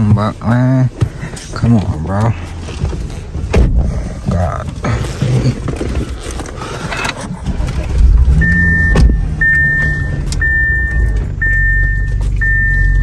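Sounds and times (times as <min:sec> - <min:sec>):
car engine starting and idling: 0:00.0 - 0:13.0
dashboard warning chime beeping: 0:08.3 - 0:13.0.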